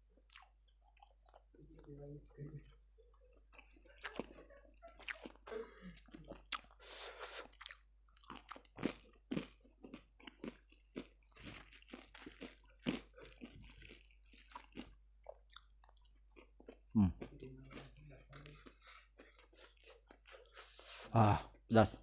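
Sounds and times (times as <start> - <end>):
chewing crispy fried chicken: 0.0 - 22.0
wet mouth sounds: 6.2 - 8.9.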